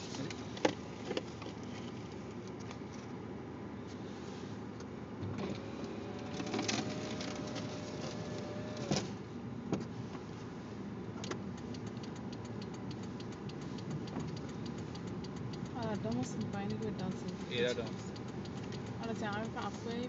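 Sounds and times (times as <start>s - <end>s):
vehicle engine and road rumble: 0.0s - 20.0s
thin steady whine: 11.6s - 20.0s.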